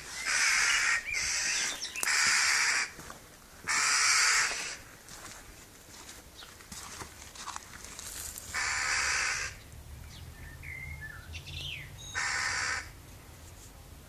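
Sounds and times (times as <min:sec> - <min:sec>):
harsh bird calls: 0:00.0 - 0:03.0, 0:08.5 - 0:13.0.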